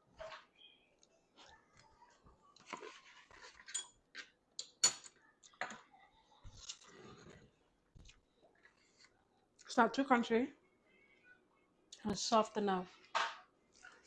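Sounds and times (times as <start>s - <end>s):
metal spoon clinking on dishes: 3.6s - 5.2s.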